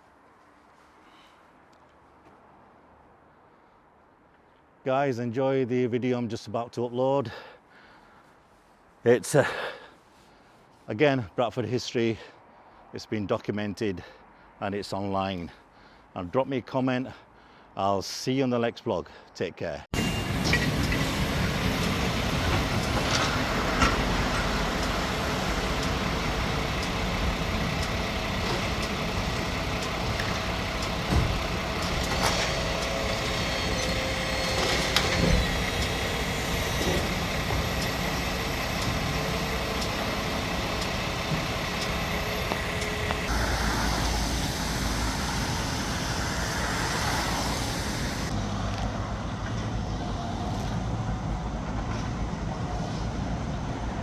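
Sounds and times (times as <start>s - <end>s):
heavy machinery engines running: 20.0s - 54.0s.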